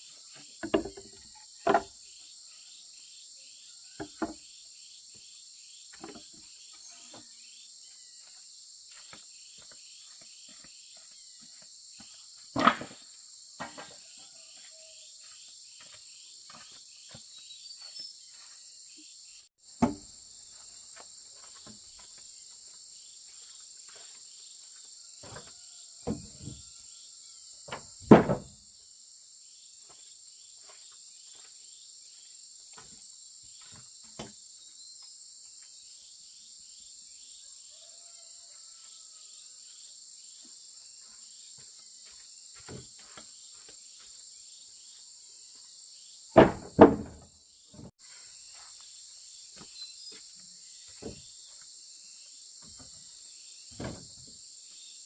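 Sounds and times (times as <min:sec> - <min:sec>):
insect chorus buzzing: 0:00.0 - 0:55.0
knocks and thuds: 0:00.6 - 0:01.9, 0:04.0 - 0:04.4, 0:19.8 - 0:20.1, 0:27.7 - 0:28.6, 0:46.4 - 0:47.9.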